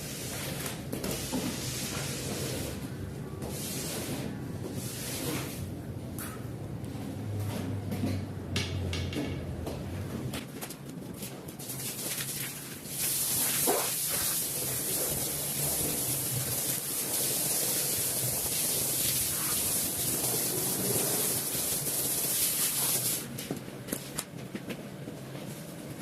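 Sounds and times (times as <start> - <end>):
water spraying with a hiss: 11.7 - 23.3.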